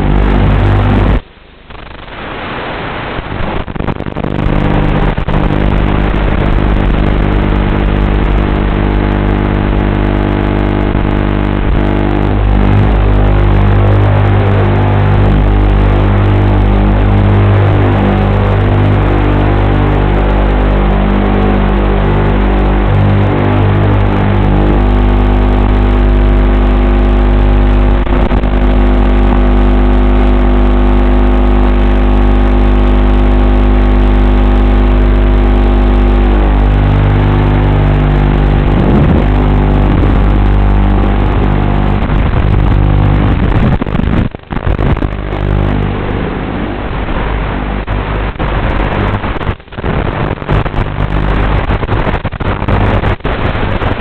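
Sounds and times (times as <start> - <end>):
drone motors whining: 4.2 - 46.8.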